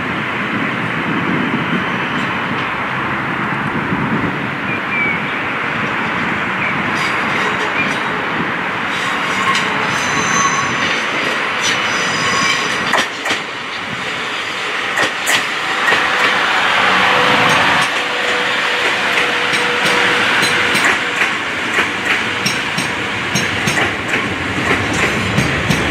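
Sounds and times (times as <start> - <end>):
train wheels clicking over rail joints: 5.6 - 14.1, 14.8 - 16.4, 17.2 - 25.9
high-pitched wheel squeals: 9.3 - 11.0.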